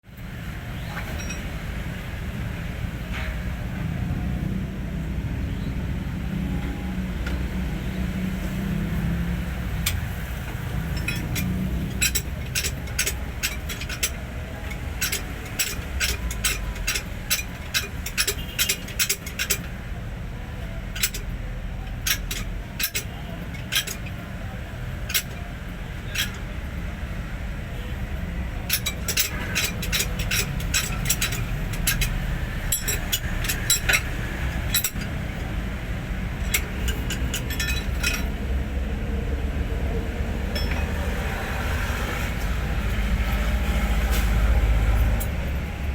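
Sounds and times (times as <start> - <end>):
diesel engine running: 0.3 - 45.9
sharp metallic clinks: 9.8 - 19.8, 20.9 - 26.5, 28.6 - 35.6, 36.4 - 38.4, 40.5 - 41.0.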